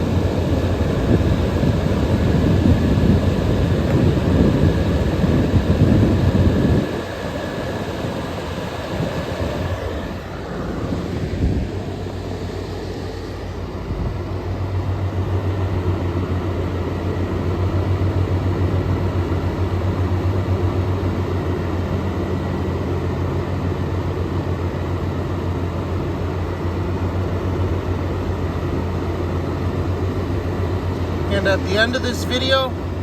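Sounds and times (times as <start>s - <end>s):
air conditioner fan blowing: 0.0s - 33.0s
compressor humming: 0.0s - 33.0s.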